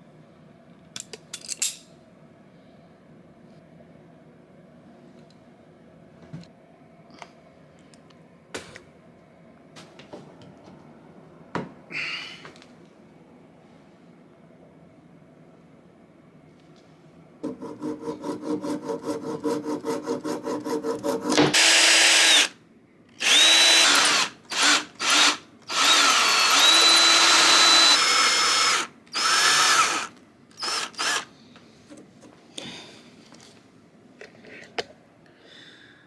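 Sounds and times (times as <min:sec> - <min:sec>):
electric drill boring: 0:21.6 - 0:22.5, 0:23.2 - 0:31.3.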